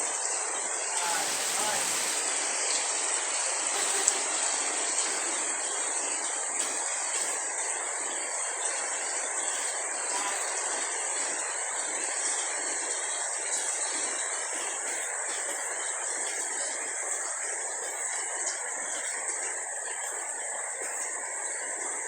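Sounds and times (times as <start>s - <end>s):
steady rainfall: 0.0s - 22.0s.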